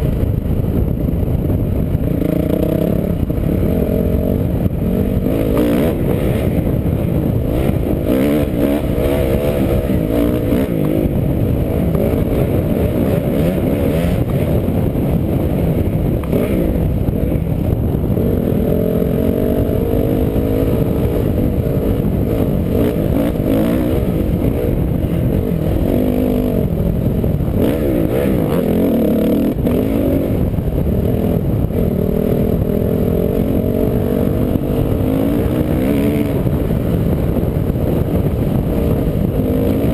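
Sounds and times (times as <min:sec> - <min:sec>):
off-road vehicle engine: 0:00.0 - 0:39.9.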